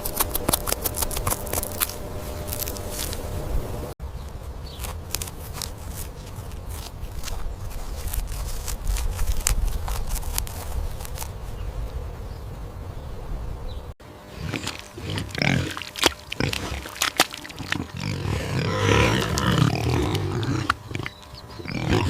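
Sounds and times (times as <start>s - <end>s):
farm animal calling: 14.2s - 22.0s.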